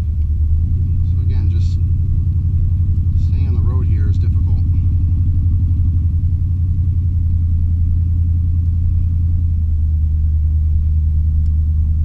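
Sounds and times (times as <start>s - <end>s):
pickup engine droning in cab: 0.0s - 12.0s.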